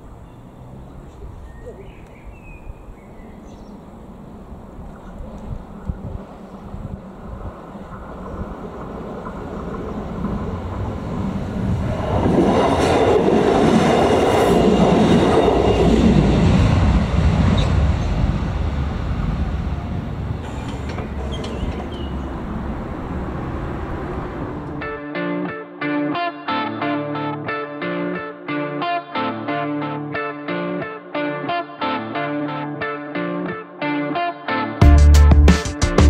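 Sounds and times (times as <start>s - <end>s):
diesel railcar passing: 0.0s - 25.0s.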